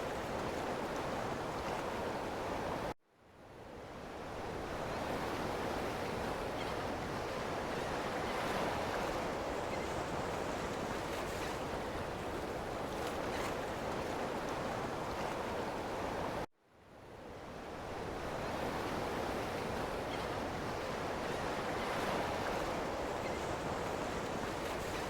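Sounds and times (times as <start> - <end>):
ocean waves washing on shore: 17.6 - 25.0.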